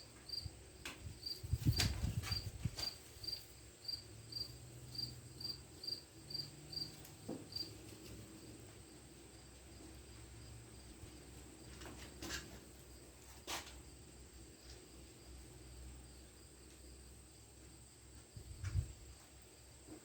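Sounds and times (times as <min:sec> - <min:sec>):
cricket chirping: 0:00.0 - 0:07.8.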